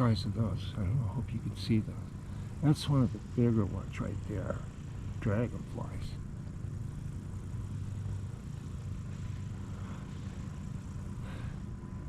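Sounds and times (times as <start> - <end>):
distant road traffic rumble: 0.0 - 12.0.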